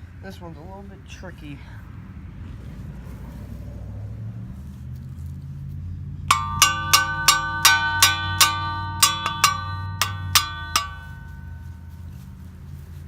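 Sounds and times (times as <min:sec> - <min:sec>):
hammer striking steel: 0:06.3 - 0:11.8
steel ringing: 0:06.3 - 0:12.1.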